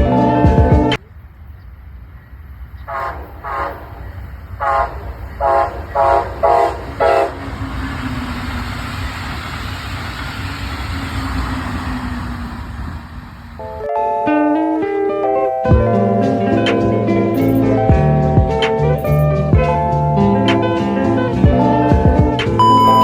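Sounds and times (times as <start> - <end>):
train rumbling past: 0.0 - 13.9
train horn short blasts: 2.9 - 4.0, 4.6 - 7.5.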